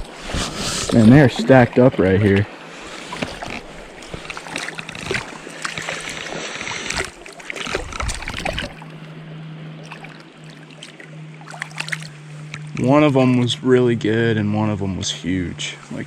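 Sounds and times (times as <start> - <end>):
creek water flowing: 0.0 - 16.0
low steady hum: 0.0 - 16.0.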